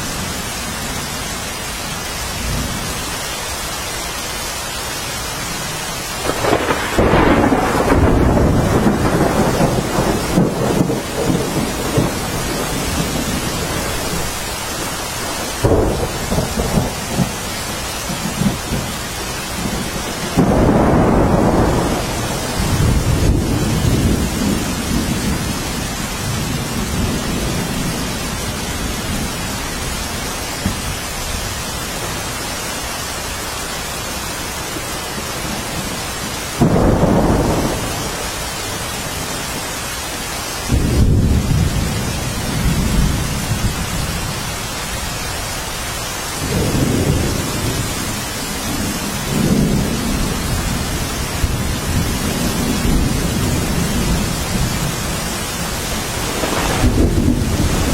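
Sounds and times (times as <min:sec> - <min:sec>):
steady rainfall: 0:00.0 - 0:57.9
thunder rolling: 0:06.2 - 0:29.5, 0:56.0 - 0:57.9.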